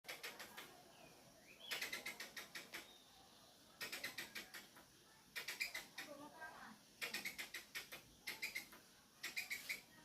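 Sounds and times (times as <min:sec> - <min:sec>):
squirrel chipping calls: 0:00.1 - 0:03.1, 0:03.7 - 0:10.0.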